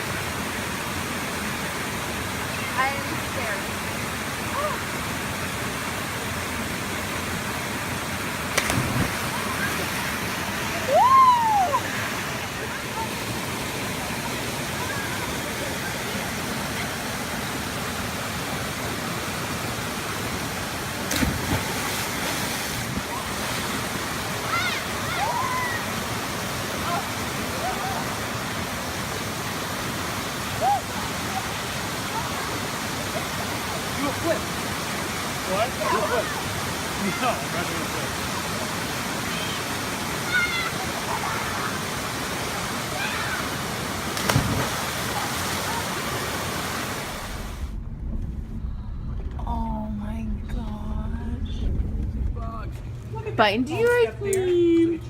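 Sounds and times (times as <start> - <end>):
waterfall rushing: 0.0 - 47.8
person splashing into water: 8.5 - 9.4, 44.2 - 45.6.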